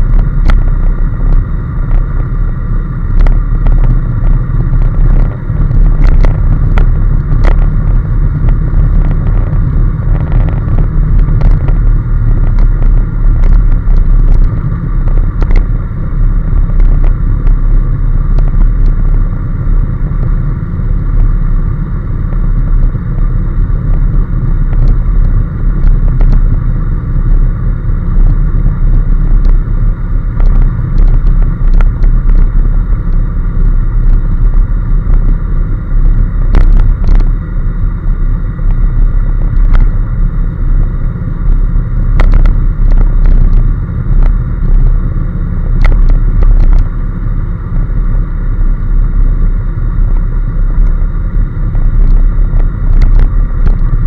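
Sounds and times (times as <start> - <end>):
motorcycle engine: 0.0 - 38.7
road noise: 0.0 - 54.0
wind rumble on microphone: 0.0 - 54.0.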